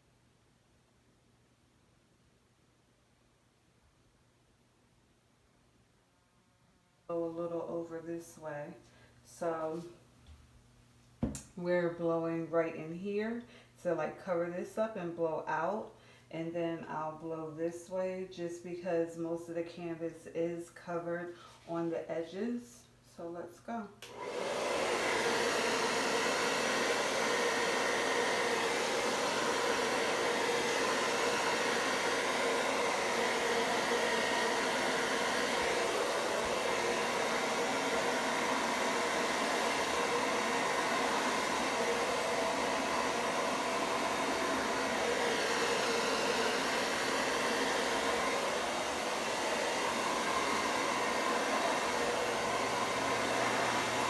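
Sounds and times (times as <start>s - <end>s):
hair dryer blowing: 24.0s - 54.0s.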